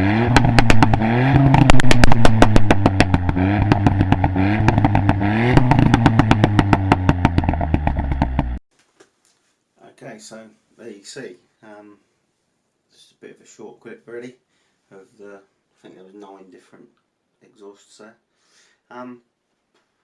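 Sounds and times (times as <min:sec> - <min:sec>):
car engine revving: 0:00.0 - 0:08.6
exhaust cracks and pops: 0:00.0 - 0:08.6.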